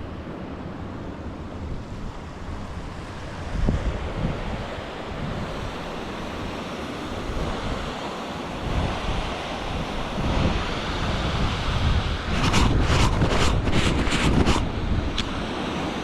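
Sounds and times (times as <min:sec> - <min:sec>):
wind buffeting microphone: 0:00.0 - 0:16.0
sharp scratchy noises: 0:12.3 - 0:14.7.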